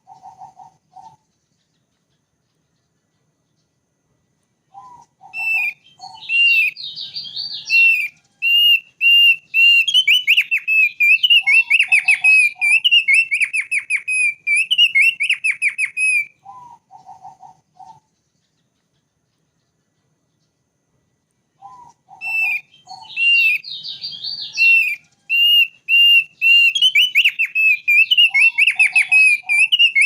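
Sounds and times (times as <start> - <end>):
low burry bird calls: 0.0 - 3.9, 4.6 - 20.8, 21.4 - 30.0
bird whistling and trilling: 4.7 - 18.1, 21.6 - 30.0.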